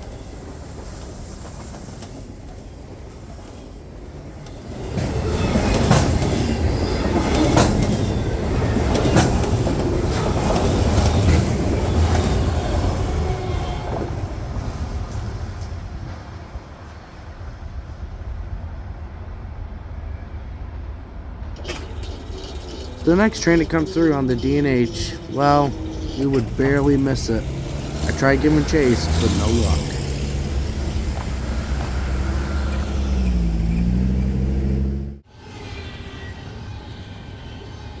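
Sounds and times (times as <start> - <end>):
wheels clacking over rail joints: 0.0 - 15.9, 21.4 - 34.7
freight train rolling past: 0.0 - 38.0.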